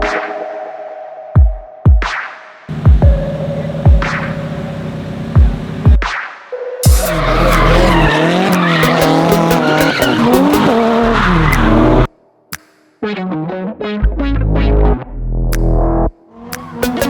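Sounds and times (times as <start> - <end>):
car engine running: 2.7 - 6.0, 7.0 - 12.1
car tires squealing: 2.7 - 6.0, 6.9 - 12.1.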